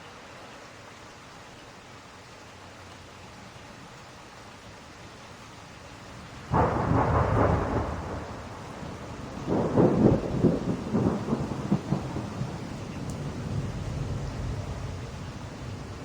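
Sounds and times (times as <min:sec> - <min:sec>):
steady rain: 0:00.0 - 0:16.0
thunder rumbling: 0:06.2 - 0:16.0.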